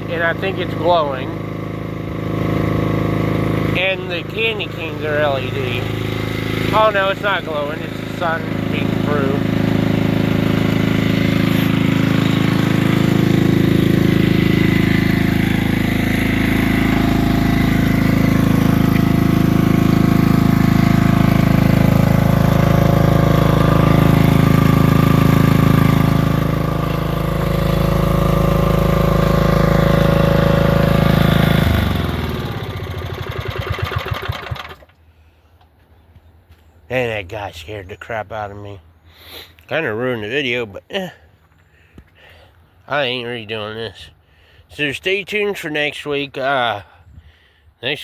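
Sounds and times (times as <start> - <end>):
generator engine running: 0.0 - 35.0.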